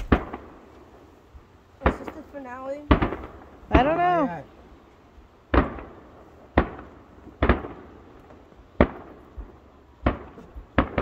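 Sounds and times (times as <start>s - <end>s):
firework shells bursting: 0.0s - 0.8s.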